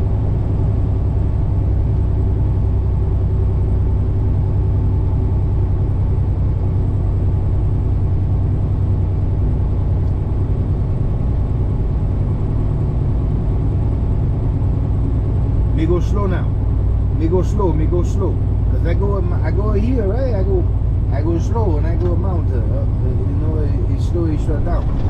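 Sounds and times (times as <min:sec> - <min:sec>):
road noise: 0:00.0 - 0:25.0
truck diesel engine drone: 0:00.0 - 0:25.0.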